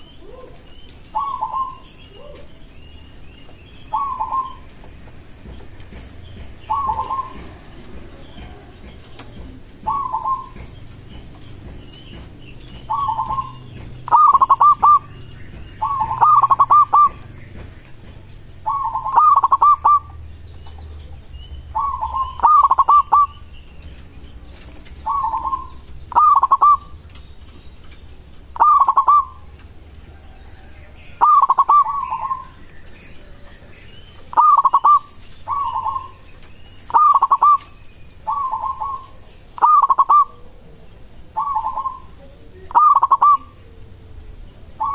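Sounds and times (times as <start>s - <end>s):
dove cooing: 0.0s - 3.1s, 3.7s - 17.7s, 18.6s - 23.4s, 24.4s - 27.2s, 28.4s - 44.9s
small birds chirping: 0.0s - 44.9s.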